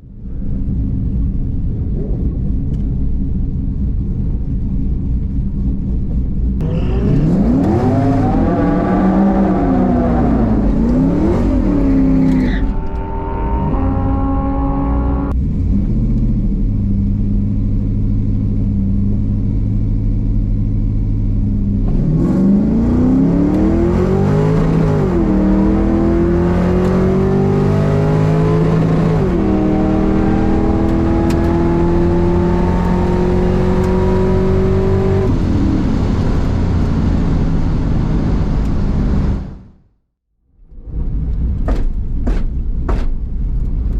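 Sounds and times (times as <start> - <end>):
car engine revving: 6.6 - 39.7.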